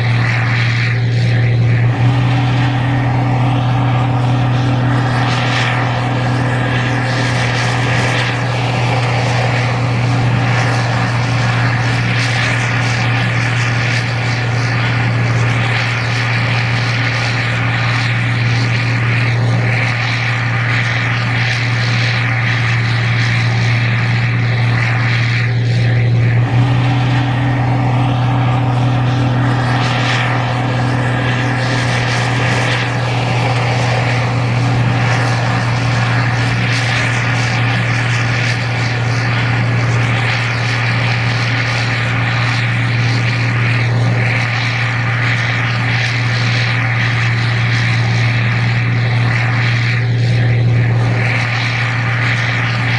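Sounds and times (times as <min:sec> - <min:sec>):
combine harvester droning: 0:00.0 - 0:52.9.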